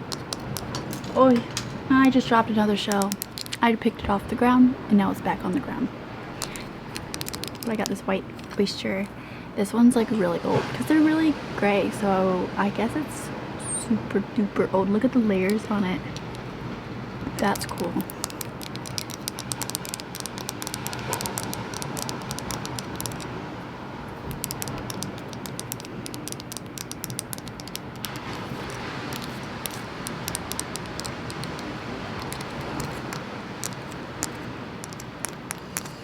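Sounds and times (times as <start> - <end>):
tapping on seashells: 0.0 - 1.8, 2.9 - 3.6, 6.4 - 9.1, 16.1 - 16.5, 17.4 - 23.3, 24.3 - 36.0
ocean waves rushing: 9.2 - 13.6, 15.8 - 36.0.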